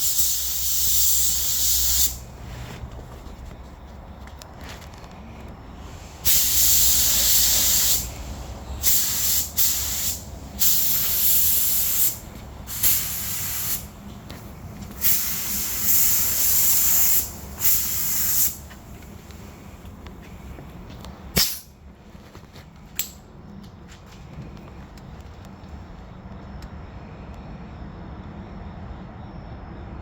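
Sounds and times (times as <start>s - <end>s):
spray gun hissing: 0.0s - 2.4s, 5.8s - 14.0s, 14.9s - 18.7s.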